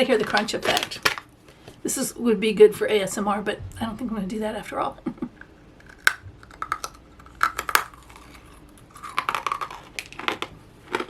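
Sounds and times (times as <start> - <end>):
crunchy candy chewing: 5.4 - 11.0.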